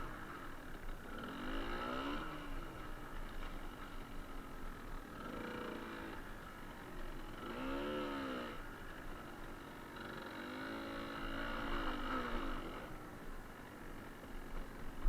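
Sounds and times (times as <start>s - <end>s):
two-stroke motorcycle engine revving: 0.0s - 15.0s.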